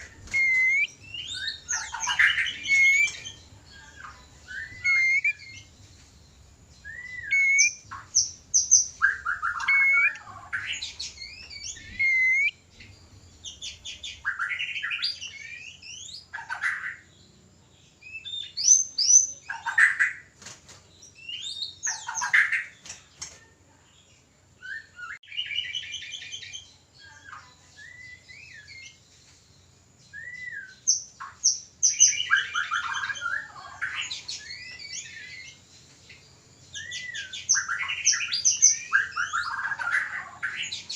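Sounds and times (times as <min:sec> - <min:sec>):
rapid stuttering bird trills: 0:00.0 - 0:03.4
harsh scolding bird notes: 0:00.0 - 0:05.5
bird whistling song: 0:00.0 - 0:05.8, 0:06.8 - 0:17.1, 0:18.0 - 0:20.3, 0:21.1 - 0:22.8, 0:24.6 - 0:29.1, 0:30.0 - 0:40.9.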